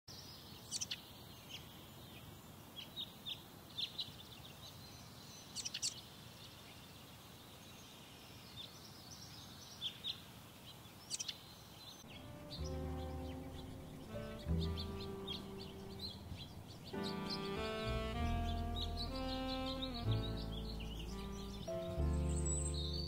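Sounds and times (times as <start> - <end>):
faint outdoor hiss: 0.1 - 23.0
birds chirping: 11.9 - 23.0.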